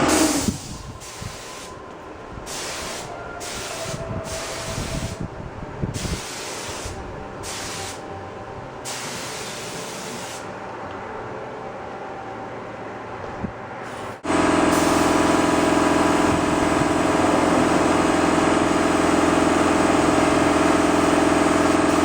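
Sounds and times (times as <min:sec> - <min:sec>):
paint spray gun hissing: 0:08.9 - 0:10.4, 0:14.2 - 0:22.0.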